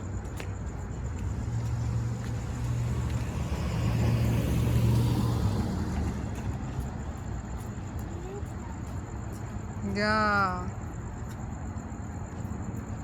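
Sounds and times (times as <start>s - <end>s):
road noise: 0.0s - 13.0s
vehicle engine passing: 1.3s - 7.4s.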